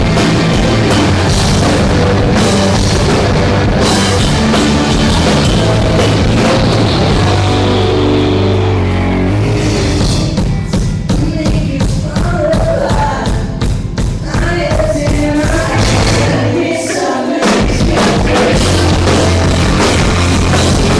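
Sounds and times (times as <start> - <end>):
drum hits: 0.0 - 8.2, 10.1 - 16.6, 17.4 - 20.9
live rock band playing: 0.0 - 20.9.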